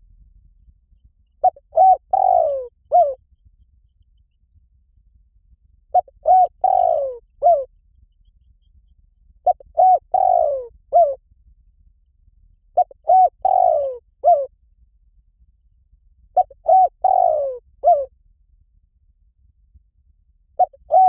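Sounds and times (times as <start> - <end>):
dove cooing: 1.4 - 3.2, 5.9 - 7.7, 9.4 - 11.2, 12.8 - 14.5, 16.4 - 18.1, 20.6 - 21.0.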